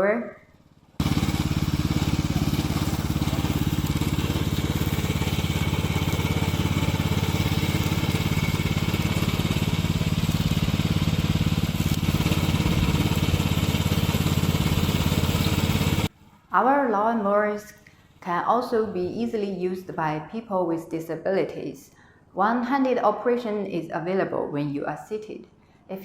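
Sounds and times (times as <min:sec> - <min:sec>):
lawn mower engine running: 0:00.6 - 0:16.1.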